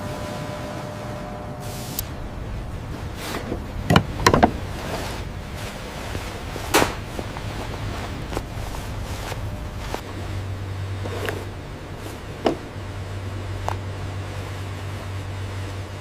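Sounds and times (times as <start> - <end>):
steady low hum: 0.0 - 16.0
sharp knocks and clacks: 3.9 - 4.6.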